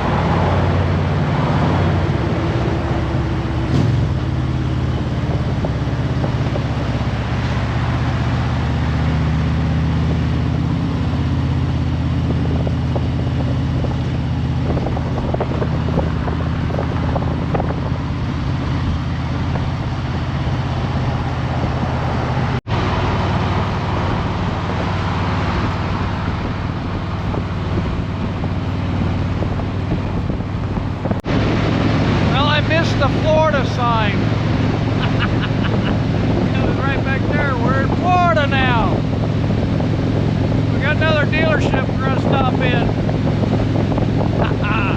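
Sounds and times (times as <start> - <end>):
motorcycle engine drone: 0.0 - 44.9
wind and road noise: 0.0 - 44.9.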